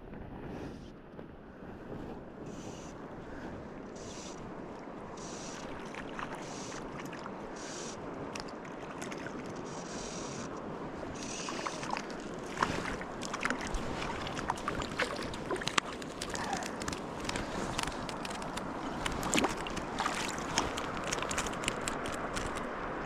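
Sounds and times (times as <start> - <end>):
river water rushing: 5.0 - 23.0
small splashes: 11.2 - 22.7
sharp ticks: 20.5 - 22.7.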